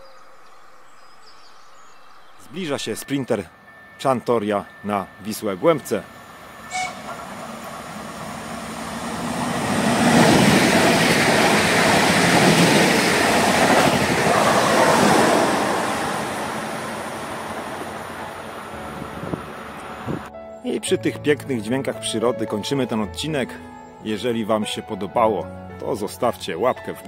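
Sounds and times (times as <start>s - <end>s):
train wheels rumbling on rails: 4.0s - 20.3s.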